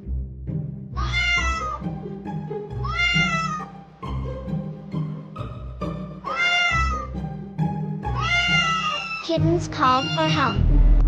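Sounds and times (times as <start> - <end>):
background music: 0.0 - 11.0
cartoon kitten meowing: 1.0 - 1.8, 2.8 - 3.7, 6.2 - 7.1, 8.1 - 10.6.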